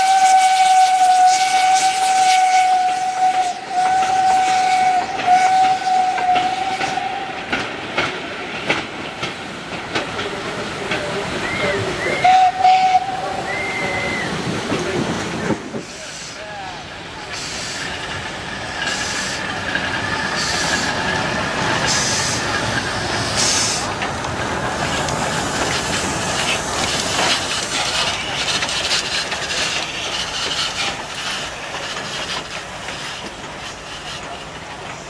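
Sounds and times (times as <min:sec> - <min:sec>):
wheels clattering over rails: 0:18.1 - 0:34.9.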